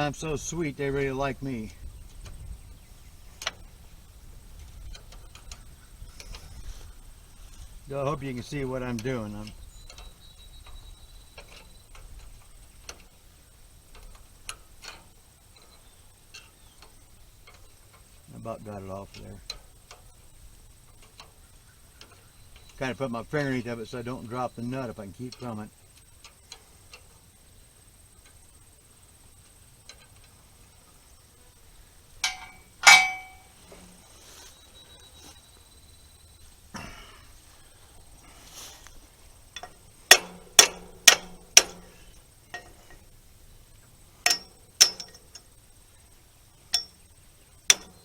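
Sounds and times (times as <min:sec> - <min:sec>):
wrench clicking on rusty nut: 0:32.2 - 0:33.6, 0:39.5 - 0:43.1, 0:44.2 - 0:45.6, 0:46.7 - 0:48.0
metal clanks ringing: 0:32.2 - 0:34.0, 0:39.5 - 0:43.1, 0:44.2 - 0:45.5, 0:46.7 - 0:47.1, 0:47.7 - 0:48.0.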